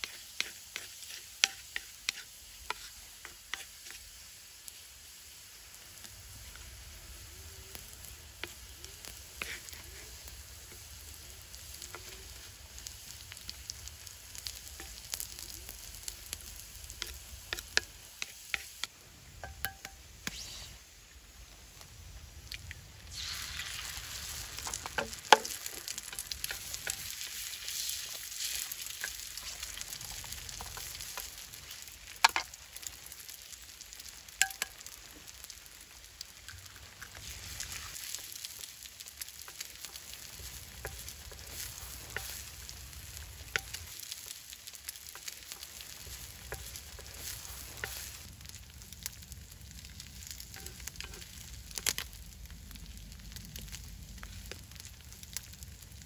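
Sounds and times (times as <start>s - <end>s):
wooden spatula scraping stone: 0.0s - 4.0s, 9.3s - 10.8s, 39.5s - 42.5s, 45.1s - 48.3s
food sizzling on hot stone: 0.0s - 56.0s.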